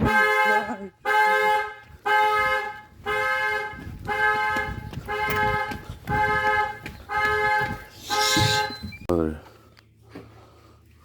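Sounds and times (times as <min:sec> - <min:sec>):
two-note car horn honking: 0:00.0 - 0:08.7.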